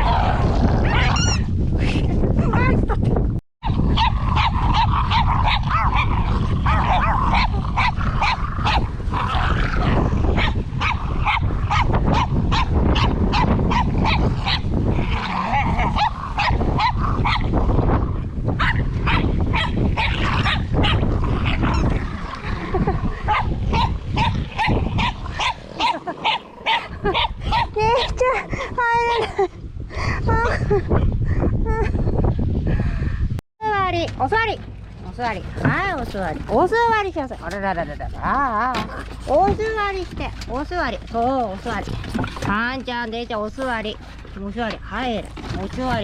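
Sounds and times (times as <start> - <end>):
puppies growling and yipping: 0.0 - 1.5, 3.6 - 28.6, 35.6 - 39.6.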